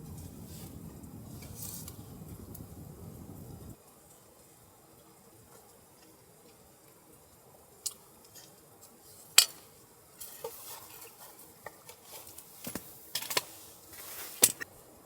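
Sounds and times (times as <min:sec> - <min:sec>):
light rustling: 0:00.0 - 0:03.8.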